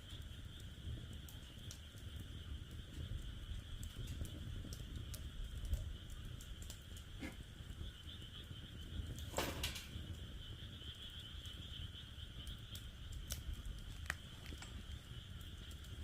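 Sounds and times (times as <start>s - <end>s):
wood fire crackling: 0.0s - 16.0s
frogs calling: 7.0s - 16.0s.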